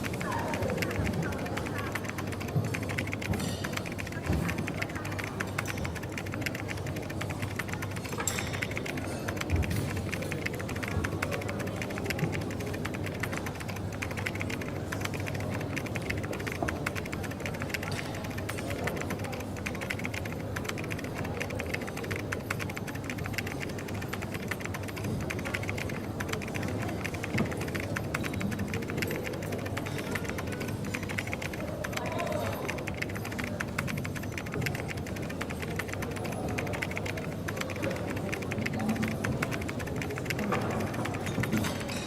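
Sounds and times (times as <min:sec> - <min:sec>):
typing on computer keyboard: 0:00.0 - 0:42.0.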